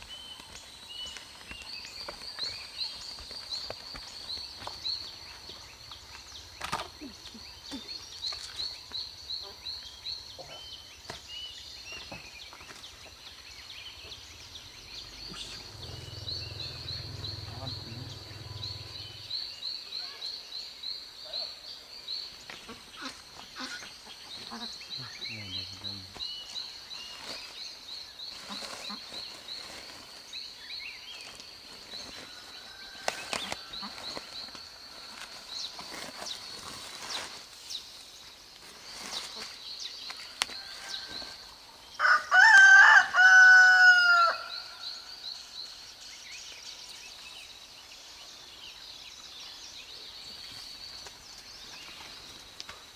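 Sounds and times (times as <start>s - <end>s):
high pulsing chirp: 13.6s - 20.0s
rustles and clicks: 31.1s - 37.9s
rooster crowing: 40.6s - 44.8s.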